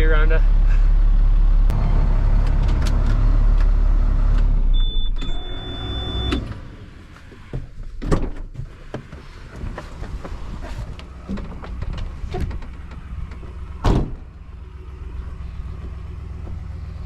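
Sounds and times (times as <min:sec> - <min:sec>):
truck engine rumble: 0:00.0 - 0:08.0, 0:08.6 - 0:17.0
knocks and clunks: 0:07.2 - 0:14.4.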